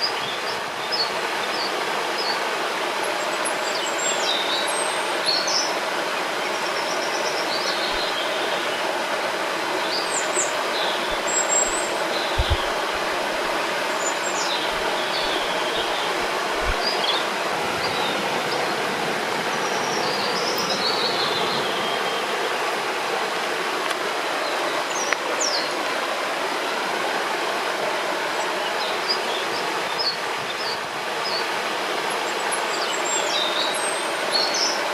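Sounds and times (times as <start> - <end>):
river flowing: 0.0 - 34.9
small birds chirping: 6.4 - 8.8, 9.7 - 18.6.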